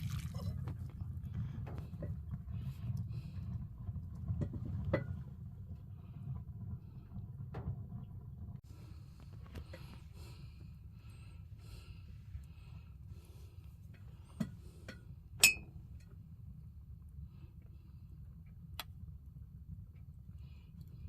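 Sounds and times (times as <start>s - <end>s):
low steady hum: 0.0s - 21.0s
loud ringing clink of glass: 15.4s - 15.7s.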